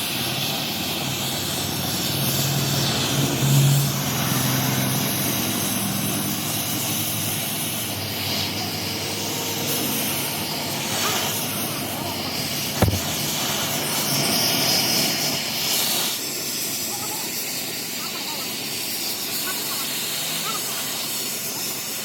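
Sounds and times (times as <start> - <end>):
workshop machine hiss: 0.0 - 22.0.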